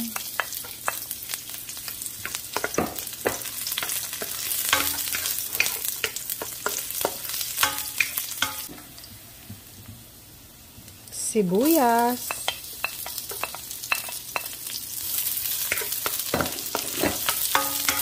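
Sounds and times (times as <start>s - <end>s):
garlic sizzling in hot oil: 0.0s - 18.0s
wooden spatula scraping a pan: 15.8s - 18.0s.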